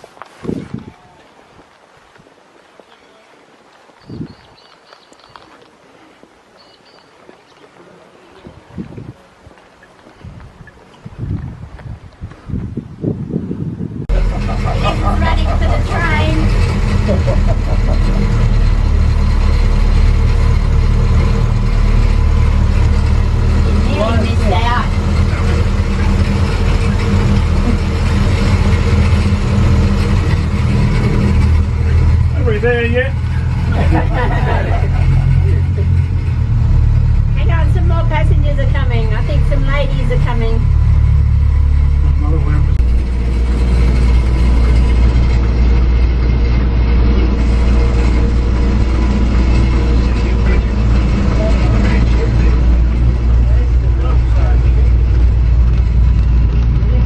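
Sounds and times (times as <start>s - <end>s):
road and wind noise: 0.0s - 57.0s
vehicle engine running steadily: 13.8s - 57.0s.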